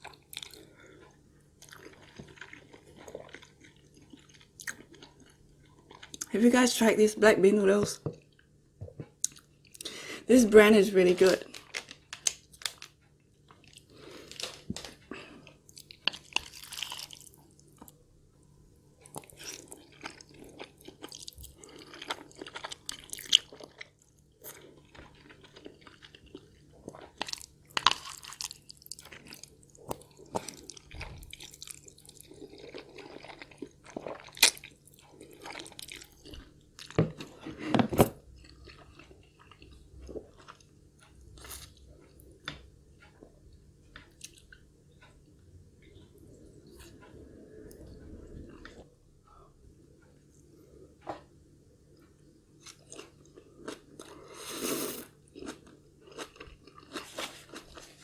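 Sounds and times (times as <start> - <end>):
chewing noodles close up: 0.0 - 6.3, 11.5 - 18.0, 19.0 - 37.4, 52.6 - 58.0.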